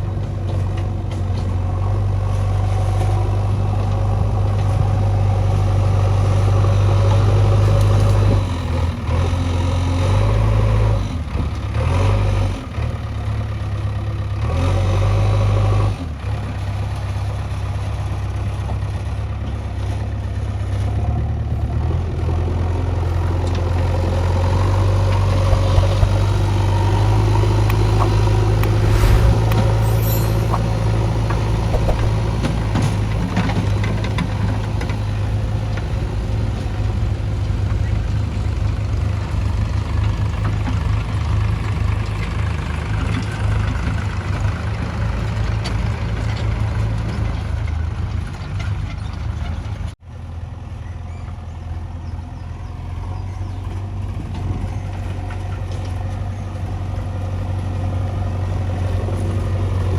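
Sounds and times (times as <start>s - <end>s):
heavy diesel engine droning: 0.0s - 49.9s, 52.5s - 59.9s
sharp knocks: 25.4s - 26.5s, 31.7s - 32.6s.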